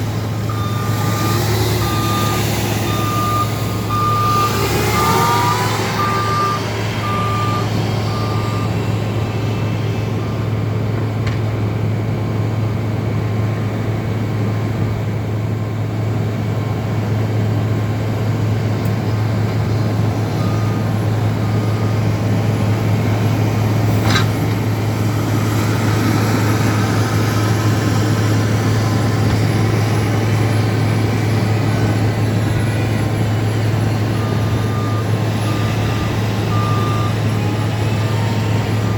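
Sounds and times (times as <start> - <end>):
heavy machinery engines: 0.0 - 38.9.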